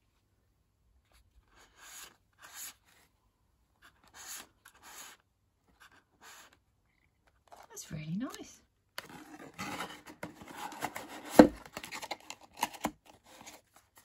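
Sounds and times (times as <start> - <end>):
cardboard box scraping rustles: 9.0 - 14.0.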